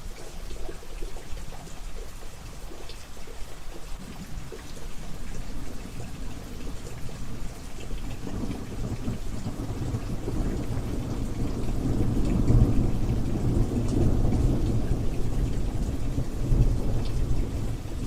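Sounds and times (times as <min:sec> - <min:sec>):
rain pattering: 0:00.0 - 0:18.0
low rumble of thunder: 0:04.2 - 0:18.0.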